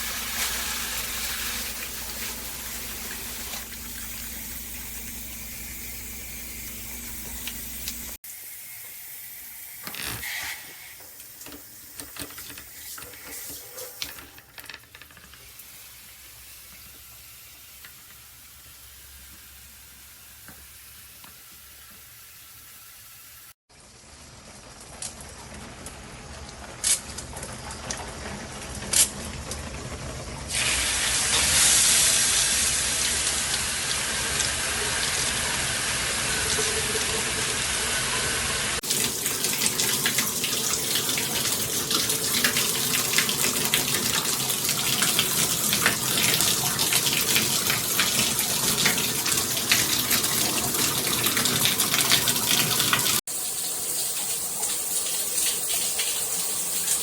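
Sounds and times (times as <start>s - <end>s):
shower head spraying water: 0.0s - 14.2s, 30.5s - 57.0s.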